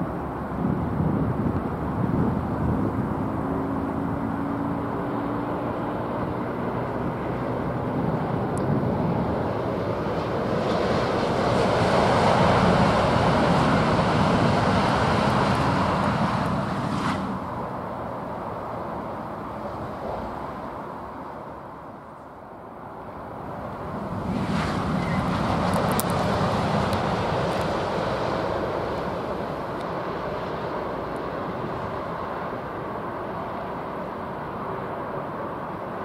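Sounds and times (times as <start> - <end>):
wind on microphone: 0.0 - 17.8, 23.4 - 33.0
high-speed train passing: 0.0 - 36.0.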